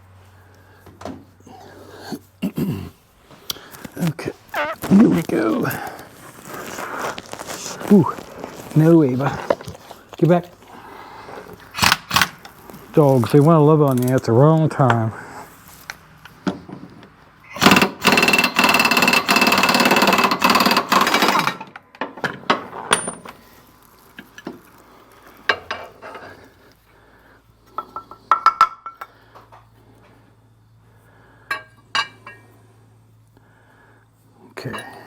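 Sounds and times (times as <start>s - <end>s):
tools and steel parts clinking: 13.2s - 14.3s, 17.6s - 23.5s, 31.5s - 32.5s
power tool running loudly: 17.6s - 21.6s.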